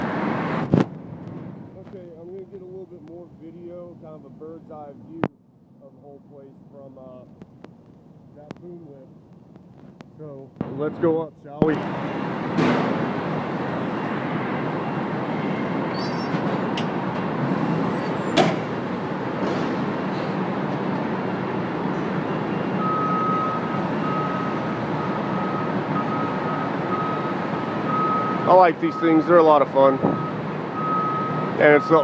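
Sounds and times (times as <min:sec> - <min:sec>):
boom lift mechanical drone: 0:10.2 - 0:32.0
high-pitched alarm beeping: 0:22.2 - 0:29.2.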